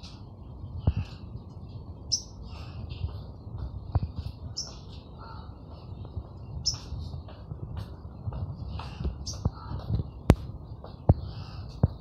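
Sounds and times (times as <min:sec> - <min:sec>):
small bird chirping: 0:02.1 - 0:02.4, 0:04.5 - 0:05.0, 0:06.5 - 0:07.0, 0:09.2 - 0:09.6
soft bird twittering: 0:02.1 - 0:02.6, 0:04.1 - 0:07.1, 0:09.1 - 0:10.3.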